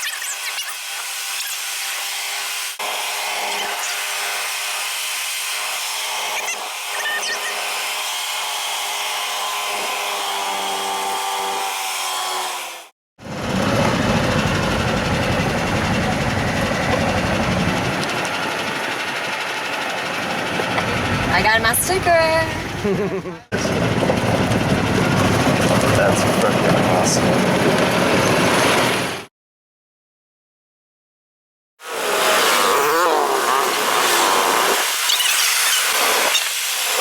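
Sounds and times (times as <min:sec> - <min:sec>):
vehicle rumble with road noise: 0:13.2 - 0:29.2
dirt bike engines whining: 0:13.4 - 0:29.0, 0:32.4 - 0:36.4.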